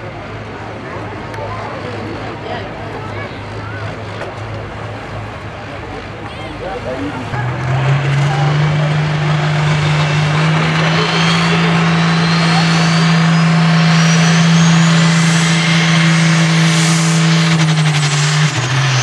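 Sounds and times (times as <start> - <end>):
diesel tractor engine at full load: 0.0 - 19.0
turbo whine: 7.7 - 19.0.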